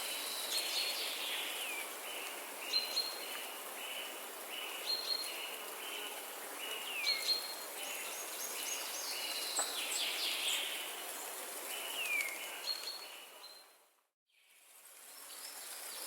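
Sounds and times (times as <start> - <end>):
songbirds singing: 0.0 - 14.5.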